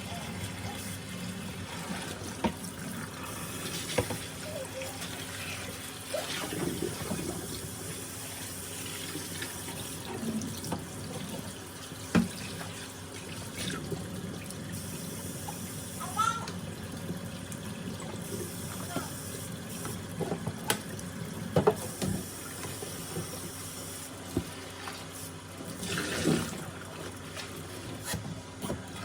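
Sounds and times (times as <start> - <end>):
tap water running into sink: 0.0 - 28.0.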